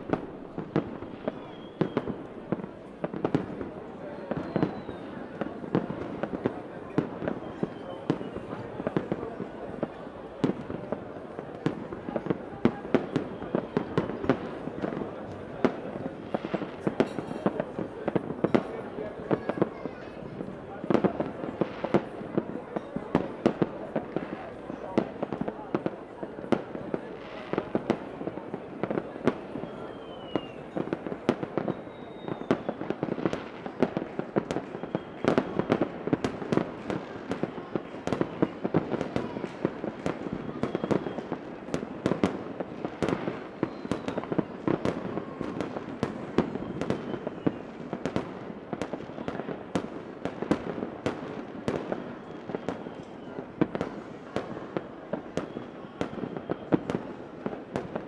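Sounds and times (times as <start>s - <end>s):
fireworks whistles: 0.0s - 5.7s, 7.0s - 9.2s, 12.8s - 14.9s, 29.3s - 48.3s, 51.5s - 57.5s
fireworks bangs and crackling: 0.0s - 58.0s.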